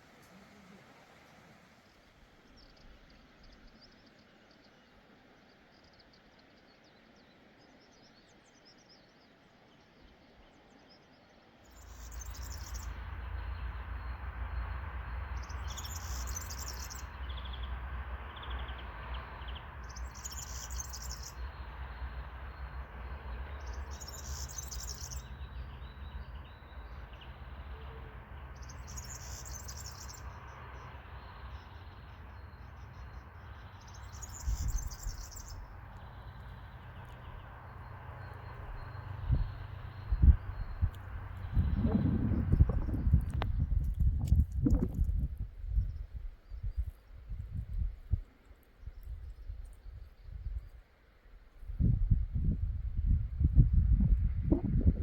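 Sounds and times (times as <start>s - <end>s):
birds singing: 0.0s - 44.9s
steady low rumble: 11.7s - 50.8s, 51.6s - 55.0s.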